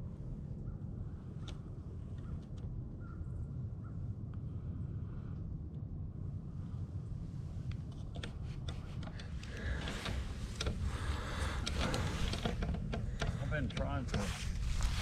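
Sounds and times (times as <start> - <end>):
steady low rumble: 0.0 - 15.0
light clicks: 1.4 - 2.7, 7.6 - 15.0
rustling and scraping: 8.0 - 15.0.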